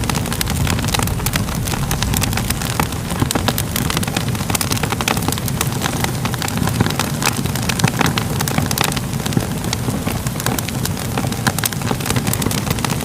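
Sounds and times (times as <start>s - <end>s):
fire crackling and popping: 0.0s - 13.0s.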